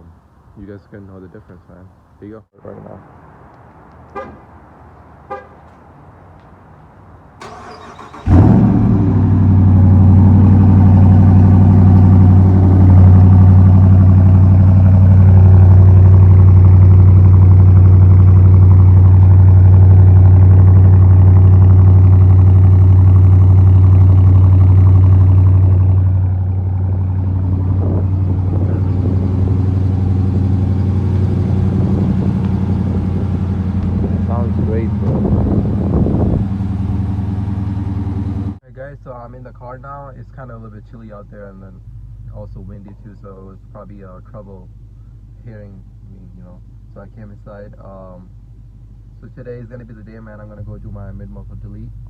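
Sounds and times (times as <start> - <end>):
starter cranking: 7.4 - 8.7
car engine idling: 7.4 - 38.6, 39.6 - 52.0.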